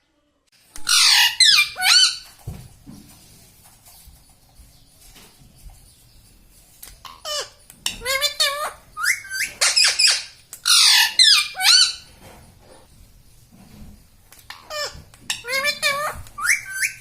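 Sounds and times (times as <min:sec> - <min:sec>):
parrot squawking: 0:00.8 - 0:02.3, 0:07.0 - 0:12.1, 0:14.5 - 0:17.0.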